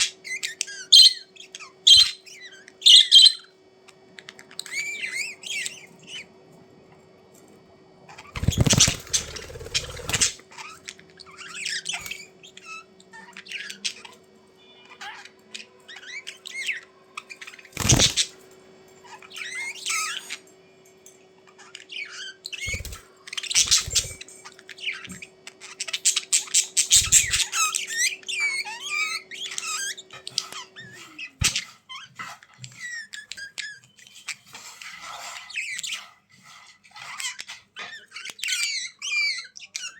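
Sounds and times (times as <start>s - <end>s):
budgerigars chattering: 0.0s - 3.5s, 8.2s - 14.2s, 15.0s - 18.4s, 21.7s - 31.7s.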